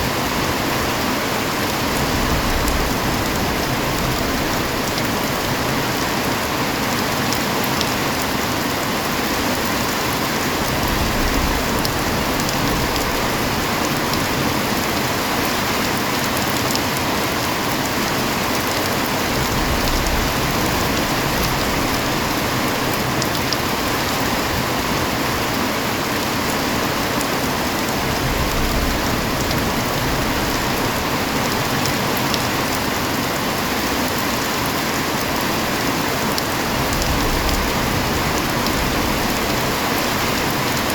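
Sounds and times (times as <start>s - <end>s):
heavy rain hiss: 0.0s - 40.9s.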